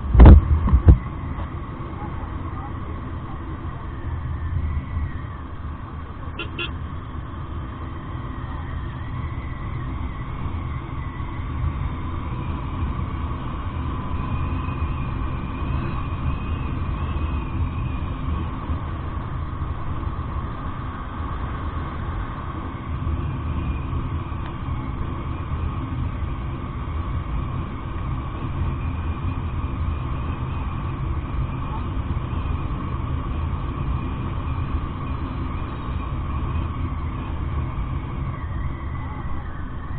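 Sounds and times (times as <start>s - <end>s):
wind rushing: 0.0s - 1.2s
motorcycle engine rumble: 0.0s - 39.9s.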